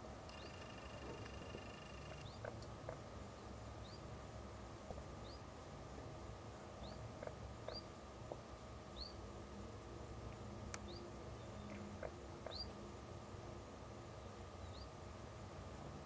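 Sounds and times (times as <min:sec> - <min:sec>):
bird chirping: 0:00.3 - 0:03.0, 0:03.8 - 0:04.1, 0:05.2 - 0:05.4, 0:06.8 - 0:07.9, 0:08.9 - 0:09.2, 0:10.8 - 0:12.8, 0:14.6 - 0:15.0.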